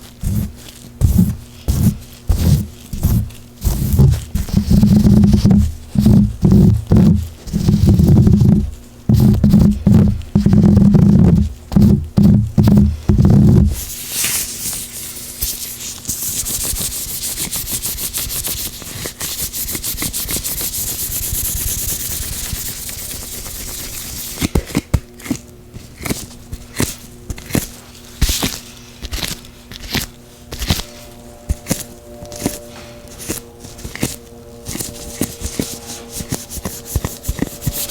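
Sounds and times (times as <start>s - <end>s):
oiled gloved hands rubbing: 0.0s - 24.5s, 28.3s - 37.9s.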